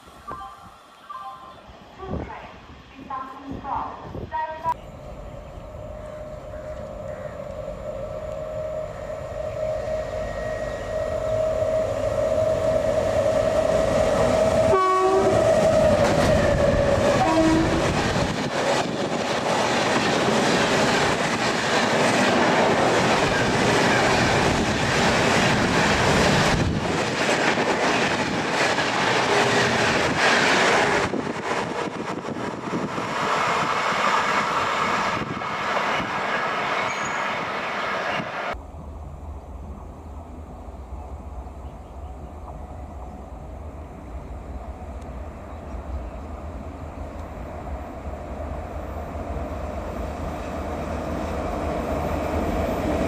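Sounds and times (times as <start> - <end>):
train horn: 8.2 - 18.0
train wheels clattering on rail: 15.3 - 37.1.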